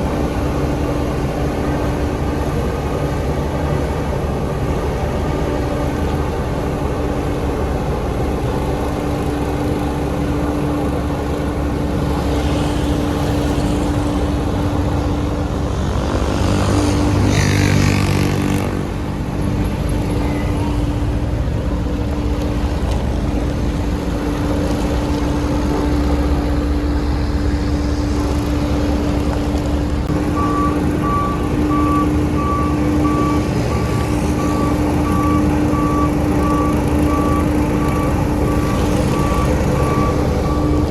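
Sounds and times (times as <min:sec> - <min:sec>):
diesel construction machinery running: 0:00.0 - 0:40.9
reversing alarm beeping: 0:30.1 - 0:40.9.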